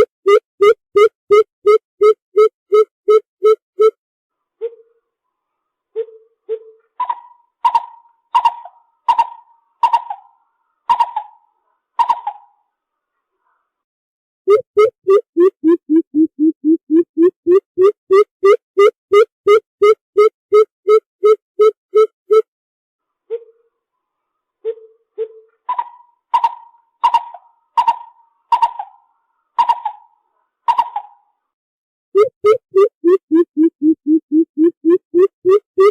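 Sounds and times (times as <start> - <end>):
bird calling low and high notes: 14.5 - 22.4, 32.2 - 35.9.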